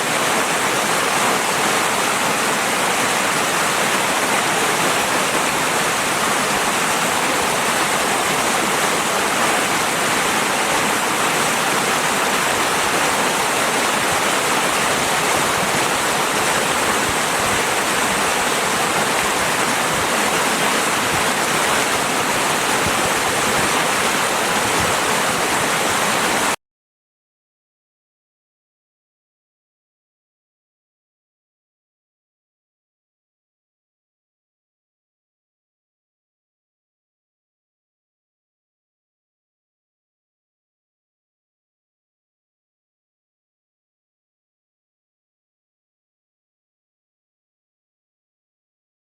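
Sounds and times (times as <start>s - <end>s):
river water rushing: 0.0s - 26.6s.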